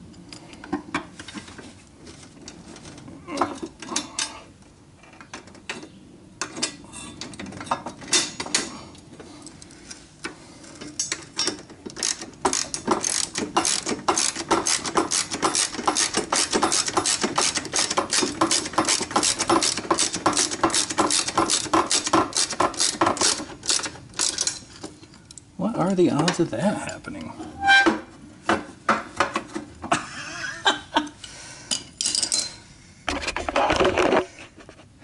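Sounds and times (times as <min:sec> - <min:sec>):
ratchet wrench clicking: 0:12.0 - 0:24.6.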